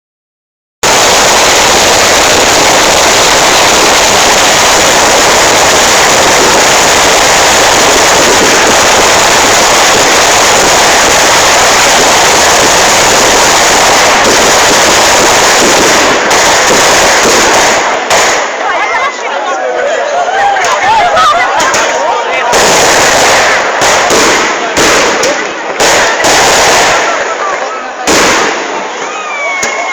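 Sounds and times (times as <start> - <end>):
firecrackers crackling: 0.8 - 29.9.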